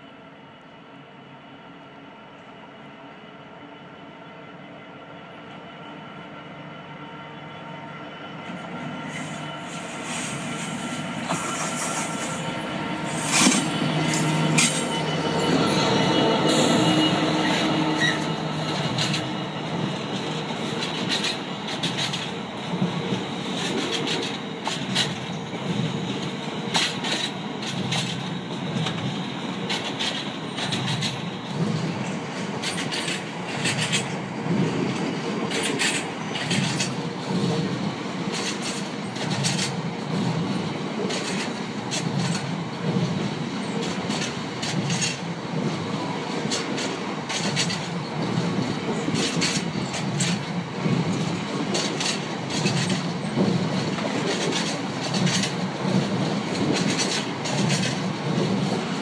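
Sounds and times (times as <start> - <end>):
diesel locomotive passing: 0.1 - 59.0
thin high squeal: 9.0 - 20.4
wheel clicks over rail joints: 51.7 - 58.8.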